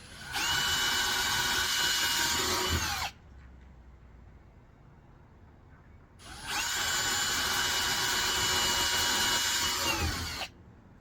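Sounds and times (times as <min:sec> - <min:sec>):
power drill whining: 0:00.0 - 0:03.1, 0:06.2 - 0:10.5.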